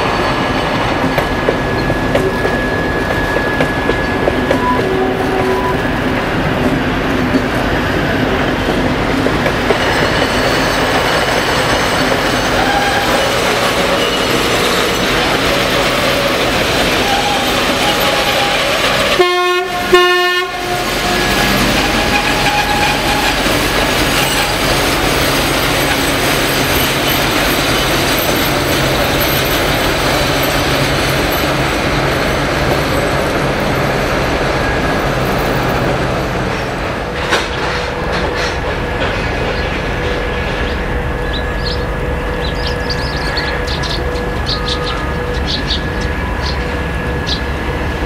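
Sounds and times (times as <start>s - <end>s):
diesel locomotive engine running: 0.0s - 48.0s
trains rolling past: 0.0s - 48.0s
train horn blasts: 4.6s - 5.8s, 16.9s - 23.4s.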